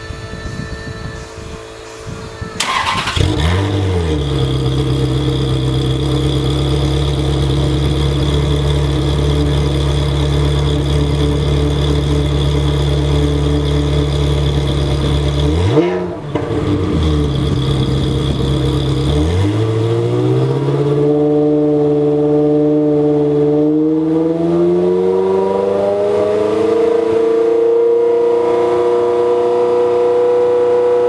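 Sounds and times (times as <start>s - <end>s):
engine throttle blip: 2.5s - 19.7s
starter cranking: 2.6s - 15.6s
car engine idling: 2.6s - 22.2s.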